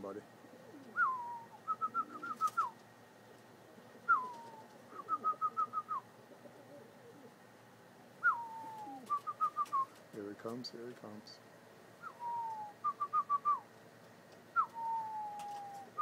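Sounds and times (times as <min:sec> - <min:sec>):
pigeon cooing: 0:00.4 - 0:07.4, 0:08.2 - 0:10.0, 0:12.0 - 0:13.6, 0:14.6 - 0:16.0
bird whistled call: 0:00.9 - 0:02.8, 0:04.0 - 0:06.0, 0:08.2 - 0:09.9, 0:12.0 - 0:13.6, 0:14.6 - 0:16.0.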